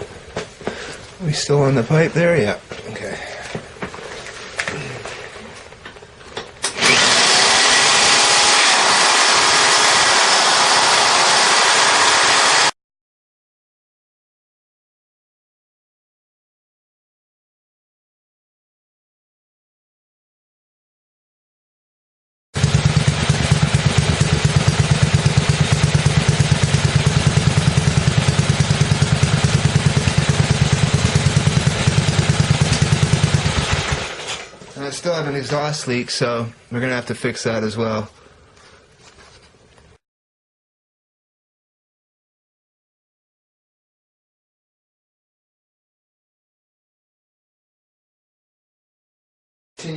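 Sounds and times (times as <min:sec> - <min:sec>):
electric drill boring into metal: 0:06.6 - 0:12.7
motorcycle engine running: 0:22.6 - 0:34.3.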